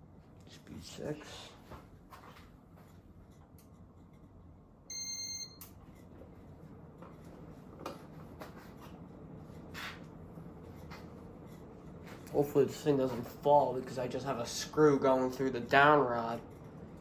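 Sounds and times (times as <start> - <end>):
ceiling fan humming: 0.0 - 17.0
high electronic beep: 4.9 - 5.6.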